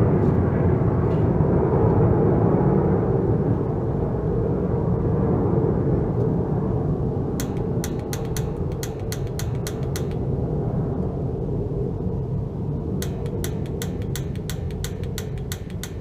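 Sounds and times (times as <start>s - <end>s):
steady low rumble: 0.0s - 16.0s
rapid sharp clicks: 7.4s - 10.4s, 13.0s - 16.0s.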